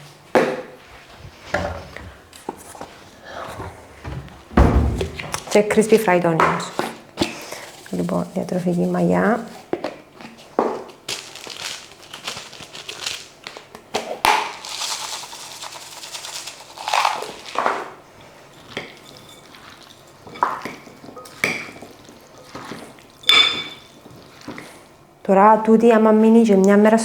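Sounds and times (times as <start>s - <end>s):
utensil scraping a salad bowl: 6.5s - 9.7s, 14.9s - 24.8s.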